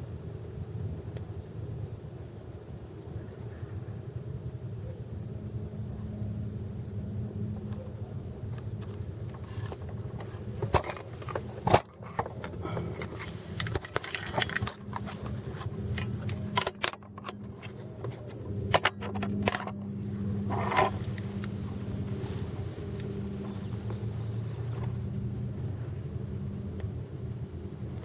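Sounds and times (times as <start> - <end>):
car engine idling: 5.9 - 28.0
handling clicks and clatters: 7.6 - 25.2.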